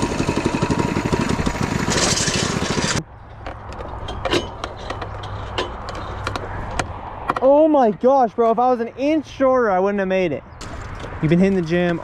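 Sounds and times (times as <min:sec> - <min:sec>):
mini-bike engine running hard: 0:00.0 - 0:03.0.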